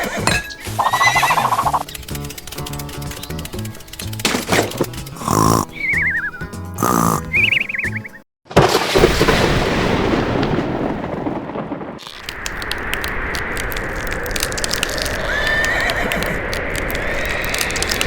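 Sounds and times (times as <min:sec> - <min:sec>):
hiss with crackling clicks: 0:01.4 - 0:04.2, 0:12.0 - 0:18.0
loud rumbling boom: 0:08.8 - 0:12.0.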